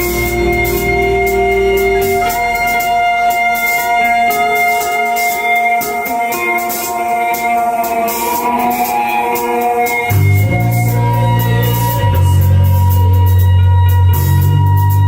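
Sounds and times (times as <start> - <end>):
deep bass: 0.0 - 5.2, 9.9 - 15.0
cymbal beat: 0.0 - 15.0
rock band playing live: 0.0 - 15.0.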